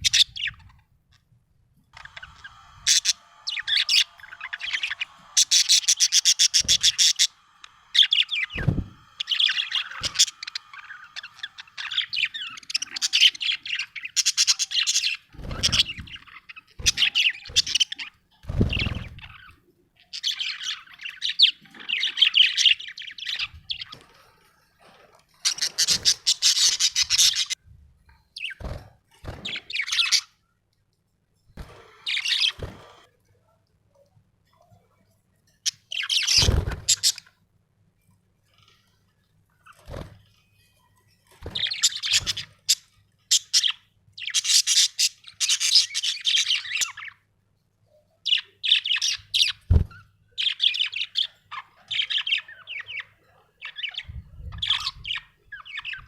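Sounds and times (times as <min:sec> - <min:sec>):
budgerigar chirping: 0:02.0 - 0:18.0, 0:25.5 - 0:27.6, 0:32.0 - 0:33.0, 0:41.6 - 0:47.1.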